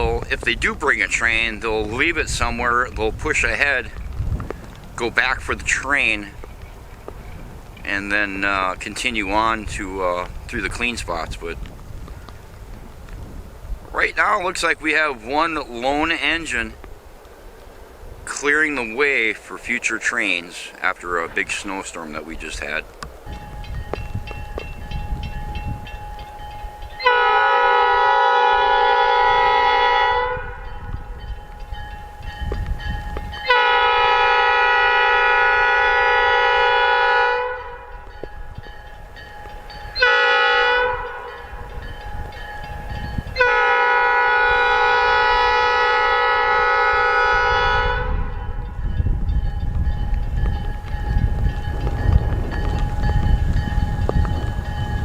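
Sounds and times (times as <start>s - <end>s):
locomotive rumble: 0.0s - 55.0s
locomotive air horn blasts: 26.9s - 30.9s, 33.1s - 38.0s, 39.9s - 41.8s, 43.2s - 48.8s.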